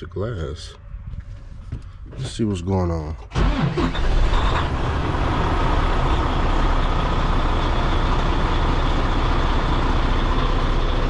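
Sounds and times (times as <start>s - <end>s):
diesel engine idling: 3.3s - 11.0s.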